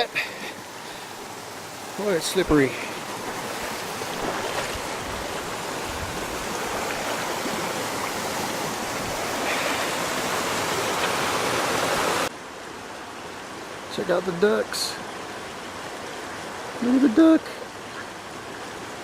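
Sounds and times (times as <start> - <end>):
creek water running over rocks: 0.0 - 19.0.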